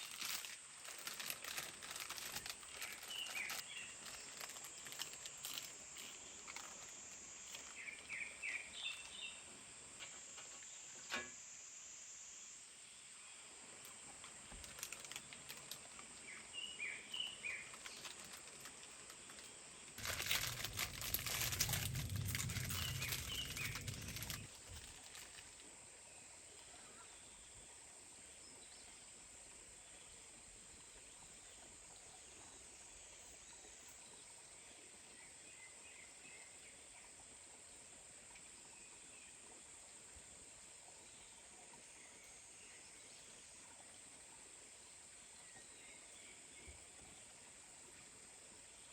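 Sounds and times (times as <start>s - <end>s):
rustling with low rumble: 0.0s - 9.2s, 14.4s - 16.1s, 17.4s - 25.7s
insect drone: 0.0s - 15.8s, 16.5s - 25.5s.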